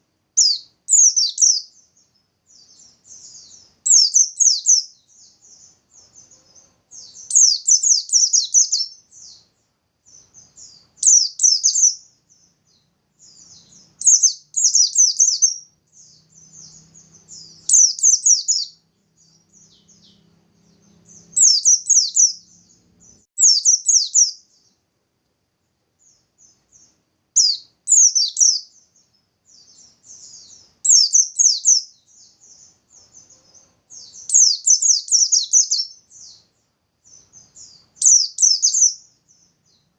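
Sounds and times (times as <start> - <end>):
soft bird twittering: 0.0 - 24.8, 26.0 - 39.9
bird chattering song bursts: 0.4 - 24.8, 26.0 - 39.9.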